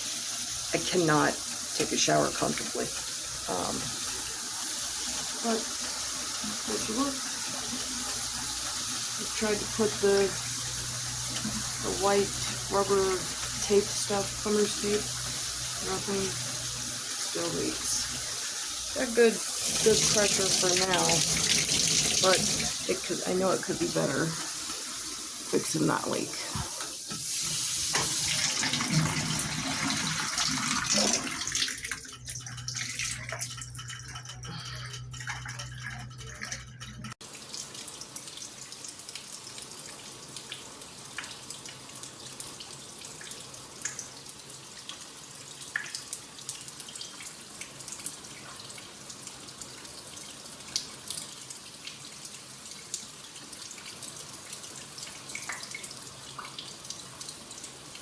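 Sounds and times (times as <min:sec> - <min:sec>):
shower water spraying: 0:00.0 - 0:31.7
water running: 0:00.0 - 0:58.0
water dripping: 0:00.4 - 0:58.0.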